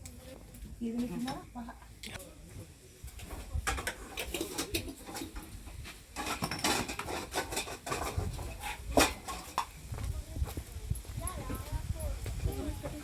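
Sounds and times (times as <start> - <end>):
cooking pots and utensils clinking: 3.2 - 9.8.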